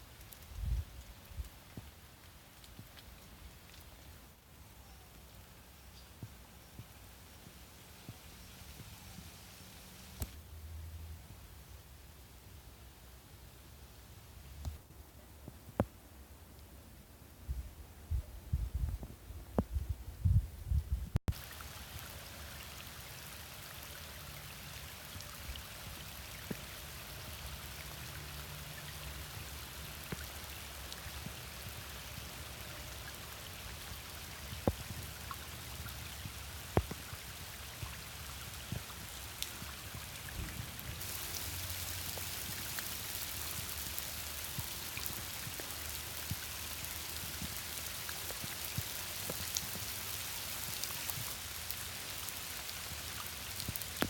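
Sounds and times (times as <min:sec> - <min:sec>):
rain falling: 0:00.0 - 0:10.4, 0:21.3 - 0:54.0.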